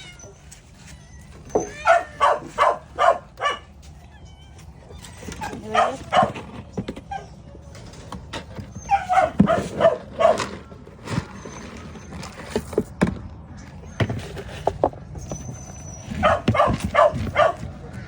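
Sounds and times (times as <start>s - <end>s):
dog barking: 1.8s - 3.7s, 5.6s - 6.4s, 8.9s - 10.5s, 16.2s - 17.7s.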